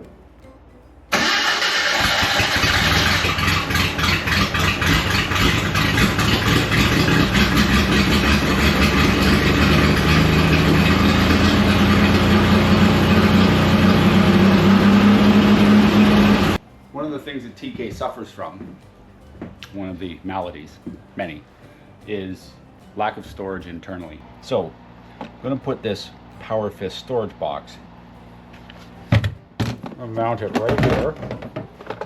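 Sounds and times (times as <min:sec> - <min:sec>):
car engine starting and running: 0:01.1 - 0:16.6.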